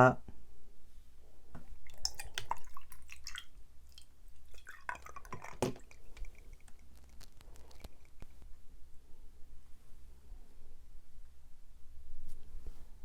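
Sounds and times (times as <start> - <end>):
mouth chewing sticky food: 1.7 - 8.5.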